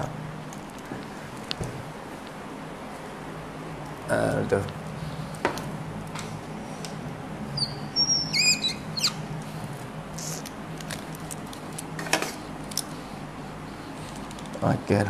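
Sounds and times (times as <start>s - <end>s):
steady low hum: 0.0s - 15.0s
high bird chirps: 7.6s - 9.2s.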